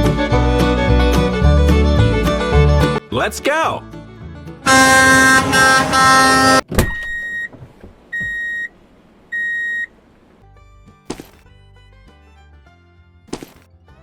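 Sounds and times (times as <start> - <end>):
vehicle horn blast: 4.6 - 6.6.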